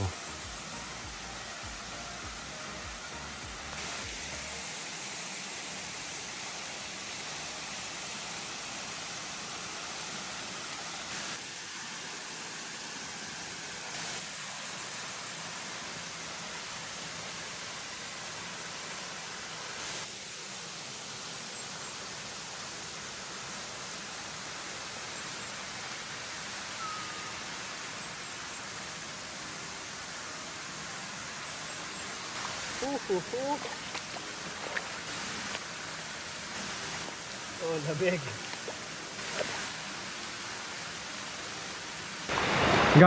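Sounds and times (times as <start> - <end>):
waterfall rushing: 0.0 - 15.5, 24.0 - 43.0.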